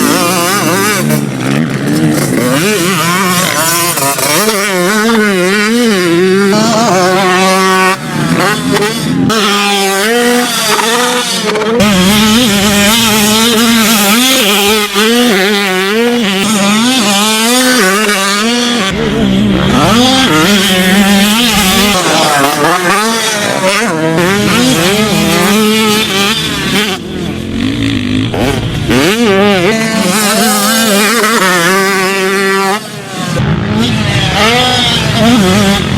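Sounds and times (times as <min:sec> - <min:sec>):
motocross bike engine revving: 0:00.0 - 0:35.9.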